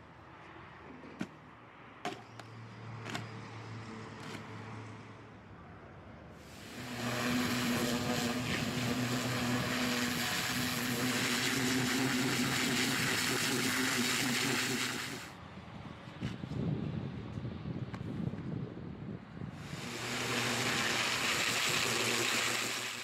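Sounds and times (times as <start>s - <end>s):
pressure washer running: 6.5s - 15.4s, 19.6s - 23.0s.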